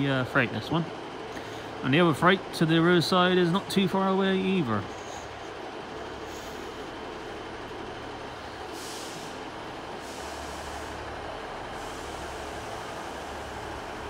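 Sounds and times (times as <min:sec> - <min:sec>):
low engine hum: 0:00.0 - 0:14.0
train rumble: 0:00.0 - 0:14.0
air hiss: 0:08.7 - 0:09.4, 0:10.0 - 0:11.0.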